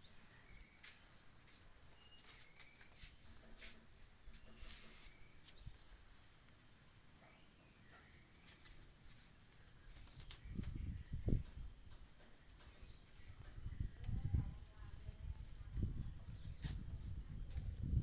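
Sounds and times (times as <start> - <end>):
falling bird chirp: 7.3 - 11.4.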